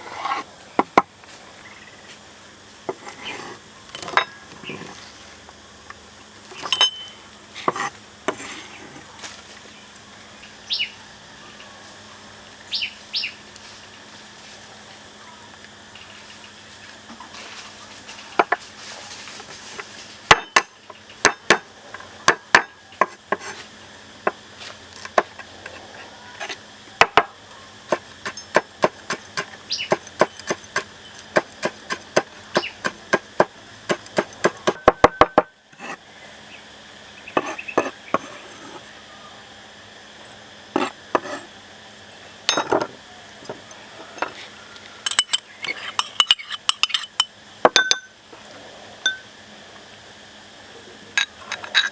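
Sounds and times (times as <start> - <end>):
kitchen utensils and dishes clinking: 6.6 - 7.2, 45.0 - 48.1.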